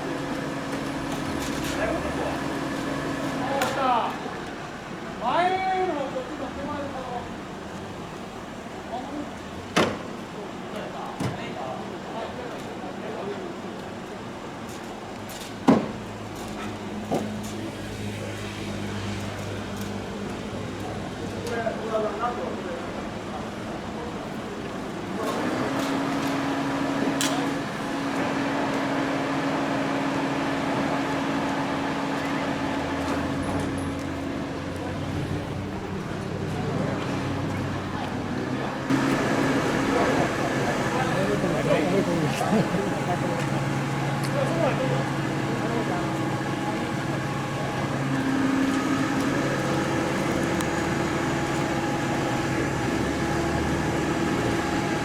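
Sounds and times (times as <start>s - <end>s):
motor humming: 38.9s - 55.0s.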